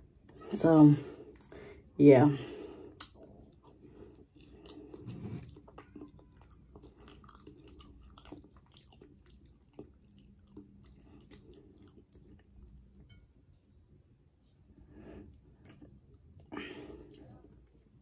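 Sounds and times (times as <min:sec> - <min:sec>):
person chewing food: 0:02.8 - 0:18.0.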